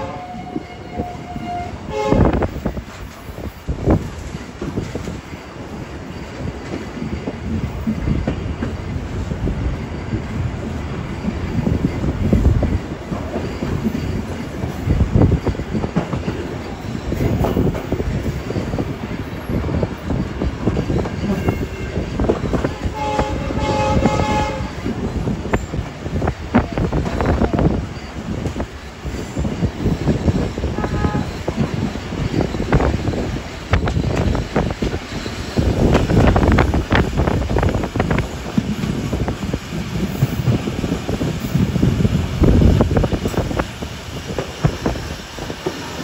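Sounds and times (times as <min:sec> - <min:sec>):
train horn: 0:00.0 - 0:02.6, 0:22.6 - 0:24.9, 0:30.7 - 0:31.4
train rumble: 0:00.0 - 0:46.0.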